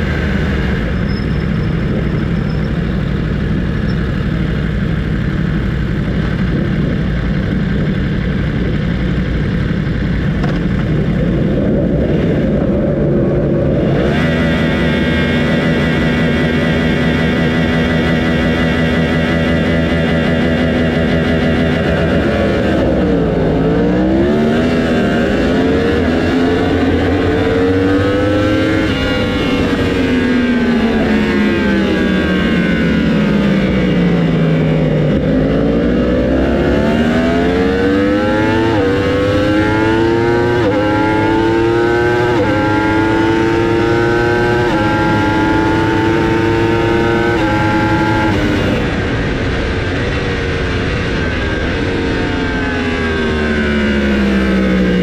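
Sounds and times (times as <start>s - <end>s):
racing motorcycle engine accelerating: 0.0s - 55.0s.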